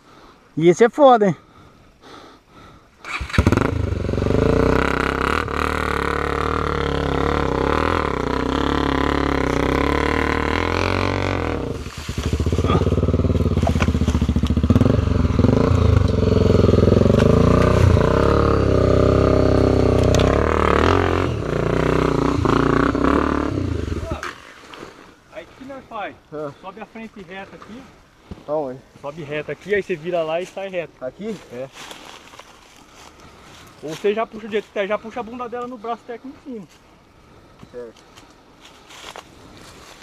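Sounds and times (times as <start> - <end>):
motorcycle engine revving: 3.1 - 24.5.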